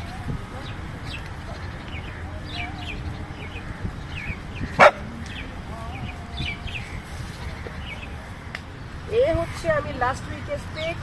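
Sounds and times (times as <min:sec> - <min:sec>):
dog barking: 0:04.8 - 0:05.1.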